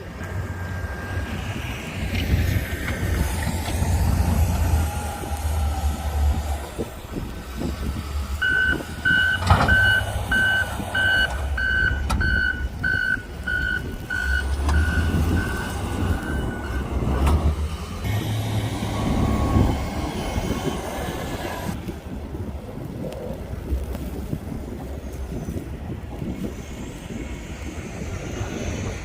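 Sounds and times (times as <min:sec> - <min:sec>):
wind buffeting microphone: 0:00.0 - 0:29.0
reversing alarm beeping: 0:00.2 - 0:01.7, 0:08.4 - 0:17.0.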